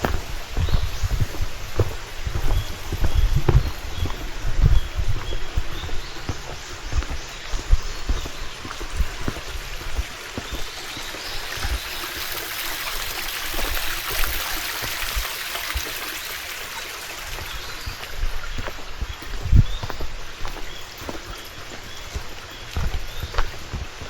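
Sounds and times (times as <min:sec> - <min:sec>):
low thuds: 0:00.0 - 0:10.6
stream running and trickling: 0:00.0 - 0:24.0.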